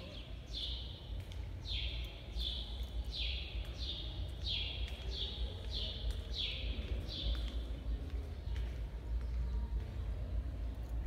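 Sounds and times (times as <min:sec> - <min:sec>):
bird chirping: 0:00.0 - 0:07.7.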